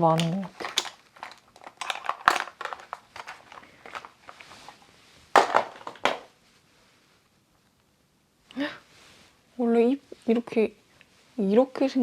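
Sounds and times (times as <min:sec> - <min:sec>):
packaging crackling and rustling: 0:00.0 - 0:04.8, 0:05.4 - 0:06.3
crinkly clicks: 0:00.1 - 0:04.5.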